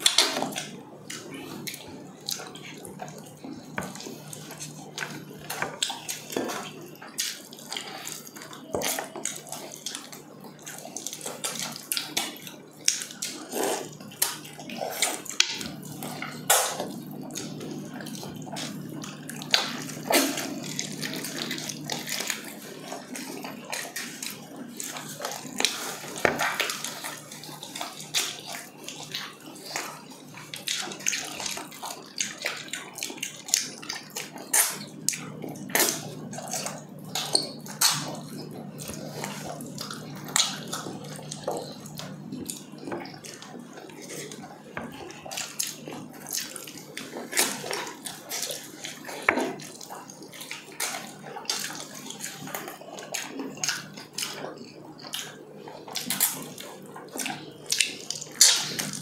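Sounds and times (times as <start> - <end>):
wet chewing and lip smacking: 0.0 - 59.0.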